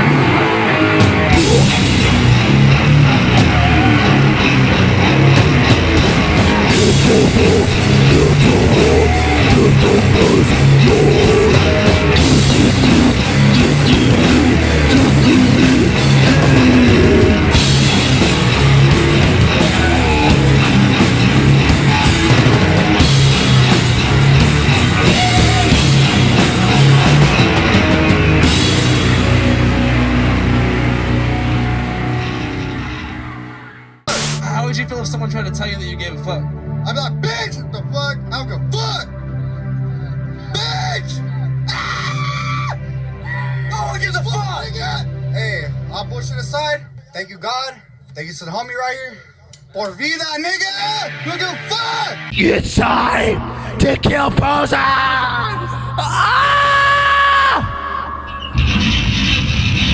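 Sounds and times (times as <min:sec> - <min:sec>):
live heavy band playing: 0:00.0 - 0:33.5, 0:34.1 - 0:34.4, 0:52.3 - 0:59.9.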